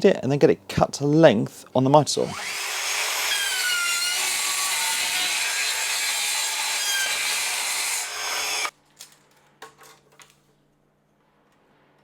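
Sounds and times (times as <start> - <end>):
mitre saw cutting plywood: 2.2 - 8.7.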